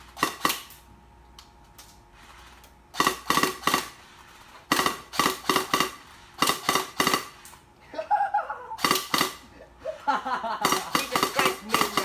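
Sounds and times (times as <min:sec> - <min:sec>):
airsoft gun shots: 0:00.2 - 0:00.7, 0:03.0 - 0:04.0, 0:04.7 - 0:07.4, 0:08.8 - 0:09.5, 0:10.6 - 0:12.0.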